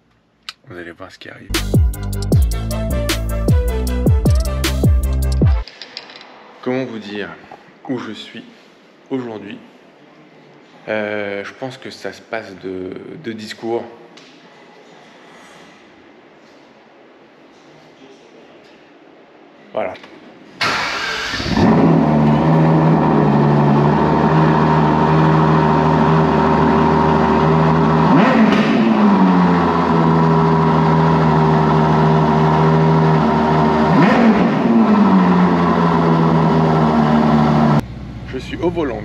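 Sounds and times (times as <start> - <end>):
car engine starting and idling: 20.6 - 39.0
engine revving: 20.7 - 38.0.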